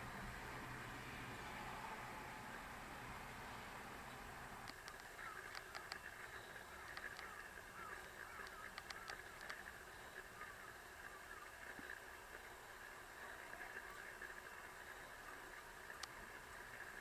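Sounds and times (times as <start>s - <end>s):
background hiss: 0.0s - 17.0s
faint bird calls: 3.8s - 17.0s
sharp ticks: 4.6s - 10.3s.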